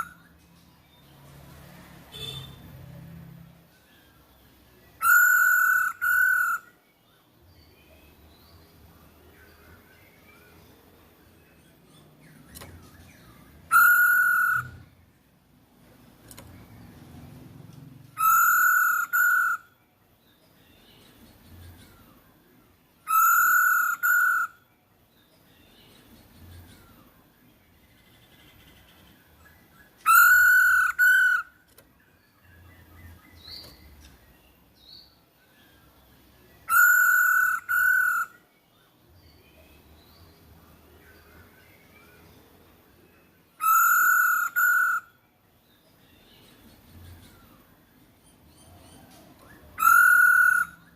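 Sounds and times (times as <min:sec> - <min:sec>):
faint bird chirps: 0:02.1 - 0:50.9
bird whistled call: 0:05.0 - 0:06.8, 0:13.7 - 0:14.9, 0:18.2 - 0:19.7, 0:23.1 - 0:24.6, 0:30.0 - 0:31.5, 0:36.7 - 0:38.4, 0:43.6 - 0:45.2, 0:49.4 - 0:50.9.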